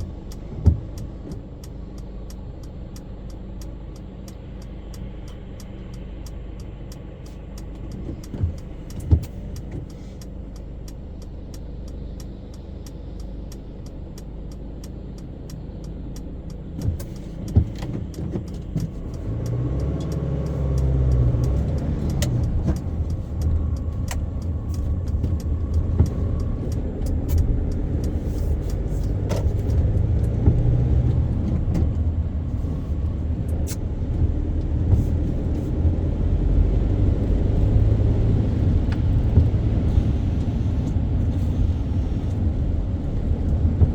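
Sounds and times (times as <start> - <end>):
sharp ticks: 0.0 - 32.0
car engine and road rumble: 0.0 - 43.9.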